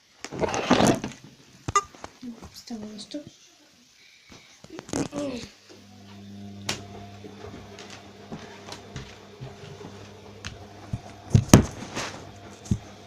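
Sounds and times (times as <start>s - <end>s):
washing machine motor hum: 5.3s - 13.0s.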